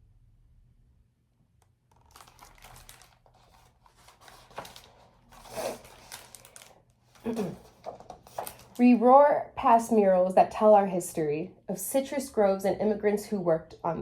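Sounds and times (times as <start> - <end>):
book pages rustling: 1.9 - 8.9.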